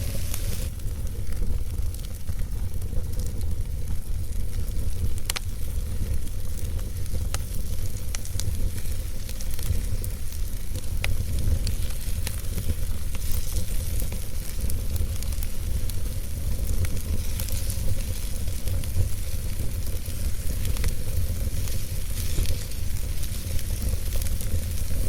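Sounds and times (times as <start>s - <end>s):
low rumble: 0.0s - 0.9s
campfire crackling and popping: 0.0s - 25.0s
steady fire hiss: 0.0s - 25.0s.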